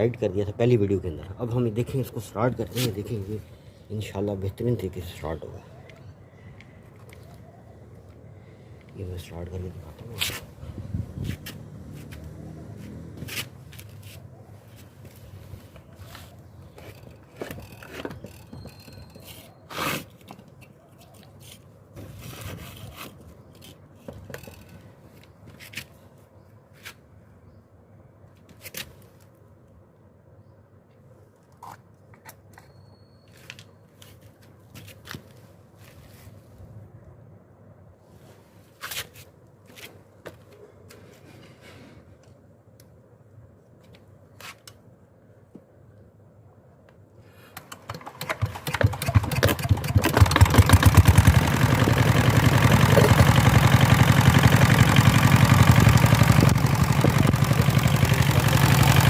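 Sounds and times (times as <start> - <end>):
scraping rustles: 21.0 - 23.8.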